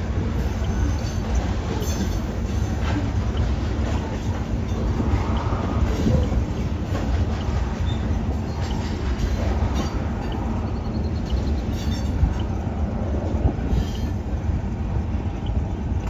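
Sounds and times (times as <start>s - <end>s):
steel wheels clacking on rails: 0.0s - 16.0s
faint wheel squeal: 7.7s - 8.9s, 13.7s - 14.2s.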